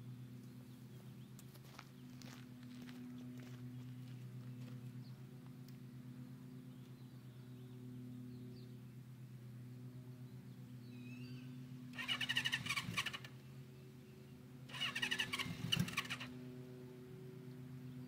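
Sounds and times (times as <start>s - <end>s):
electric starter cranking engine: 12.0s - 13.3s, 14.7s - 16.3s.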